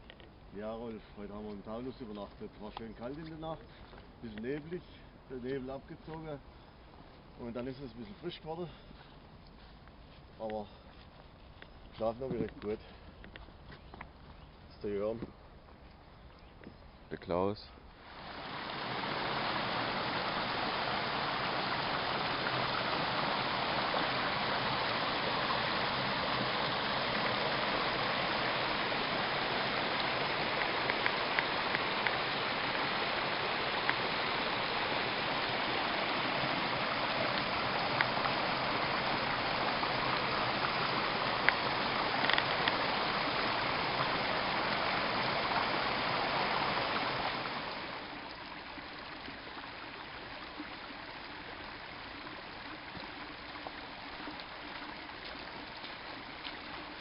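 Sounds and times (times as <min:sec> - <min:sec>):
running water rushing: 0:18.0 - 0:57.0
faint ticks: 0:30.0 - 0:32.2, 0:33.8 - 0:34.0, 0:37.3 - 0:38.4, 0:41.3 - 0:42.9, 0:52.9 - 0:56.9.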